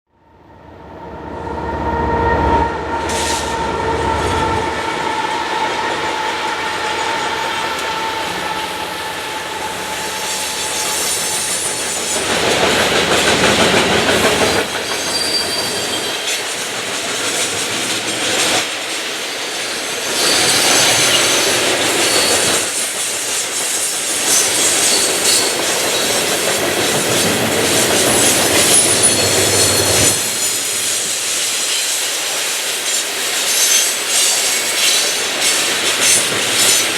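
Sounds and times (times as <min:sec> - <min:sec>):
high-pitched wheel squeal: 0:01.5 - 0:12.2, 0:14.8 - 0:16.4, 0:20.1 - 0:22.8
train wheels clacking on rail joints: 0:03.0 - 0:36.9.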